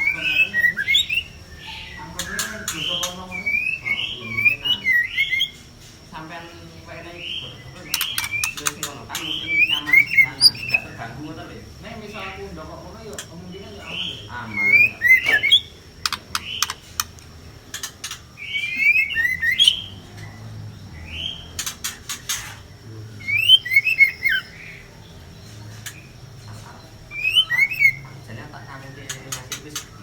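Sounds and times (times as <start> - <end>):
birds calling harshly: 0.0 - 30.0
sharp clicks and rattles: 16.0 - 18.3.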